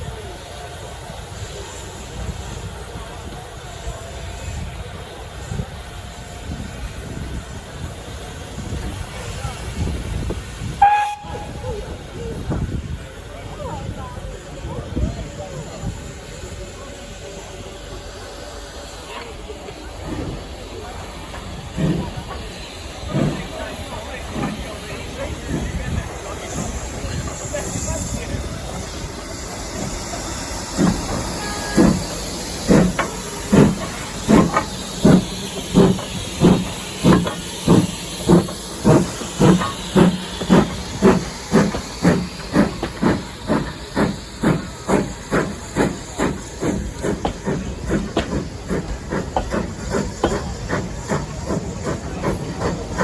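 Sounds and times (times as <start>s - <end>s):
steam hissing: 0.0s - 53.0s
steam locomotive chuffing: 0.0s - 53.0s.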